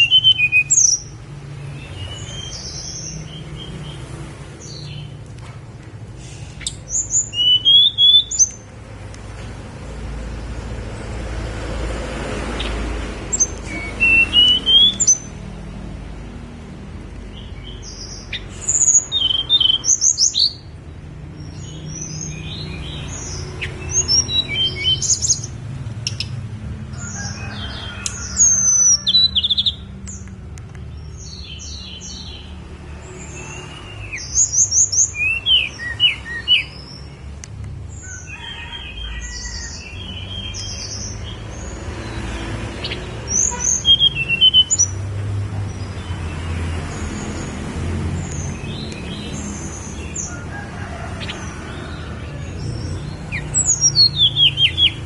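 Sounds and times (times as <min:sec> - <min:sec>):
songbird whistling: 0:00.0 - 0:01.2, 0:06.6 - 0:08.6, 0:13.3 - 0:15.4, 0:18.3 - 0:20.7, 0:23.3 - 0:25.5, 0:42.8 - 0:45.0.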